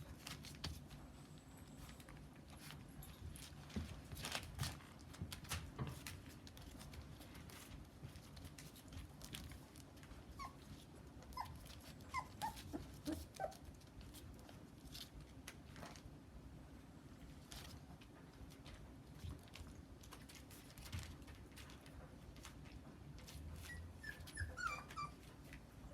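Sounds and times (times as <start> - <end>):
light scuffling and knocks: 0.0 - 12.0
puppies whimpering and squeaking: 10.2 - 13.7, 23.5 - 25.9.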